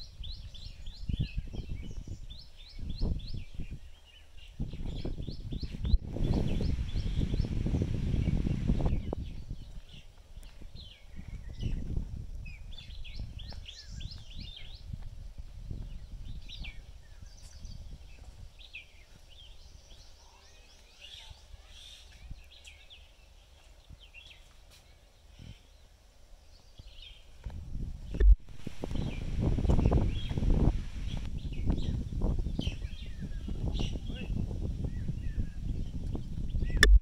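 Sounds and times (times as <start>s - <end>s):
birds chirping: 0.0s - 27.4s, 28.0s - 37.0s
steady low rumble: 5.8s - 9.7s, 27.4s - 37.0s.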